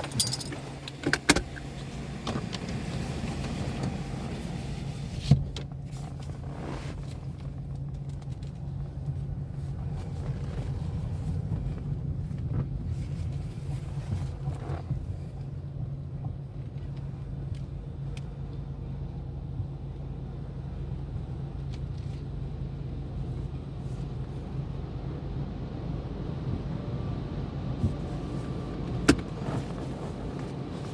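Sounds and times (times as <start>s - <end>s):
car wash mechanical hum: 0.0s - 7.6s, 19.3s - 30.9s.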